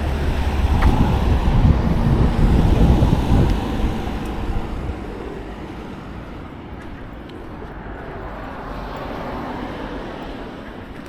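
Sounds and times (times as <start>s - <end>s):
wind buffeting microphone: 0.0s - 8.4s.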